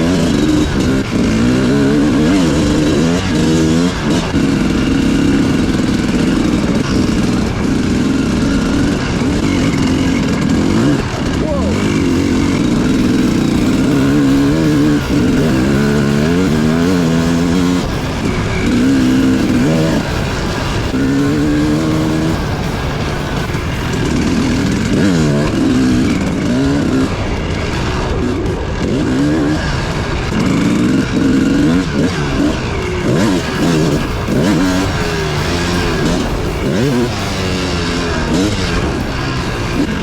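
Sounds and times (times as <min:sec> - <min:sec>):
dirt bike engine revving: 0:00.0 - 0:40.0.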